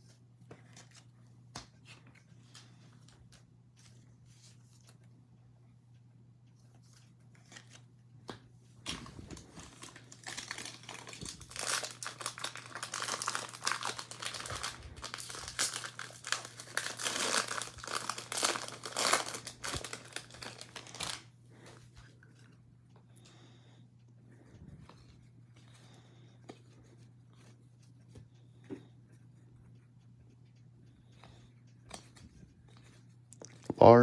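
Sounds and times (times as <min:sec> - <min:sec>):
faint low hum: 0:00.0 - 0:34.0
foil wrapper tearing and crinkling: 0:09.6 - 0:21.3.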